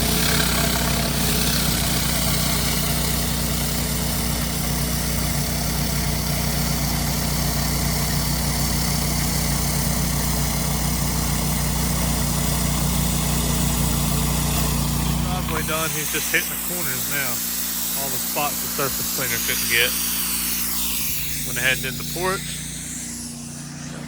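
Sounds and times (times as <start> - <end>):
pressure washer engine running: 0.0 - 24.0
even hiss: 14.6 - 24.0.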